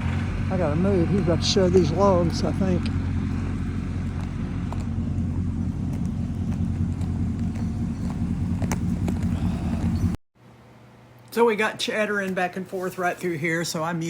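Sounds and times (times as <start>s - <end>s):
tractor engine running: 0.0s - 10.2s.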